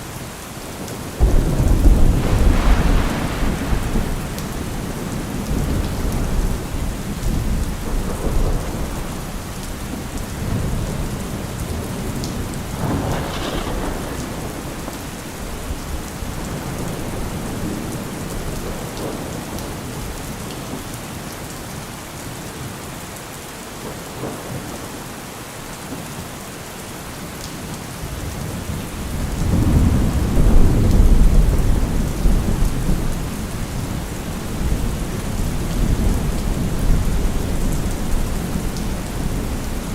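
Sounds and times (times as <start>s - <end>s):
steady rain: 0.0s - 39.9s
rolling thunder: 1.2s - 20.1s, 28.2s - 39.9s.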